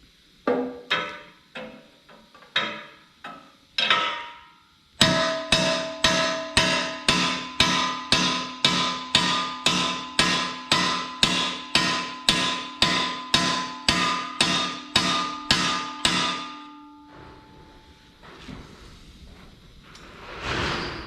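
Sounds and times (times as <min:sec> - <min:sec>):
hammer striking steel pin: 0:02.6 - 0:17.5.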